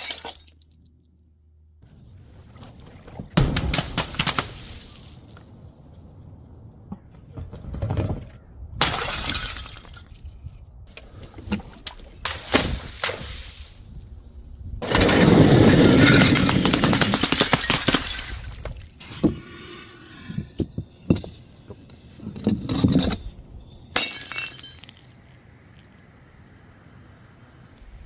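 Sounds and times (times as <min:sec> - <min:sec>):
glass bottles shattering: 0:00.0 - 0:00.8, 0:08.8 - 0:10.3, 0:14.8 - 0:19.0, 0:24.0 - 0:25.2
glass shards tinkling: 0:24.0 - 0:25.2.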